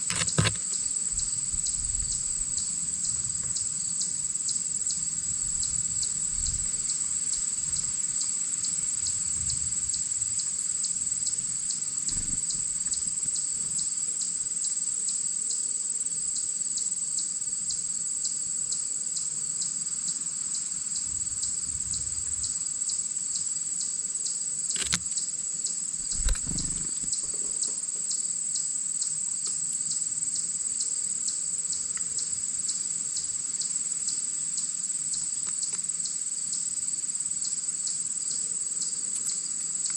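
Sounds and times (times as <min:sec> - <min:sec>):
insects chirping chorus: 0:00.0 - 0:39.9
sharp knocks: 0:00.1 - 0:00.6.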